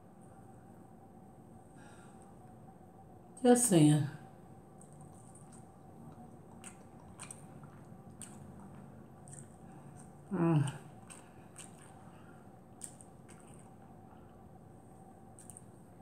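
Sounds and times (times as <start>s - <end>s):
quiet chewing with mouth clicks: 4.6s - 16.0s.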